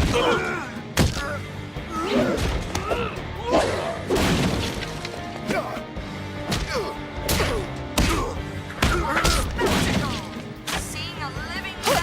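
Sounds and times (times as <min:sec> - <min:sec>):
dramatic background music: 0:00.0 - 0:12.0
thuds and whacks of blows: 0:04.1 - 0:04.9, 0:06.4 - 0:10.8.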